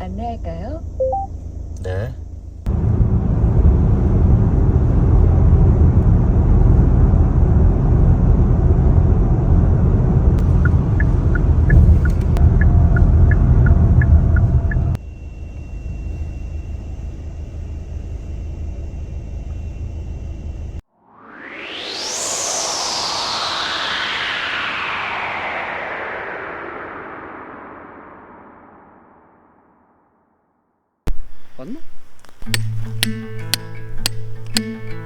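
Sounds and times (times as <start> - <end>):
car road noise rumble: 0.0 - 20.8.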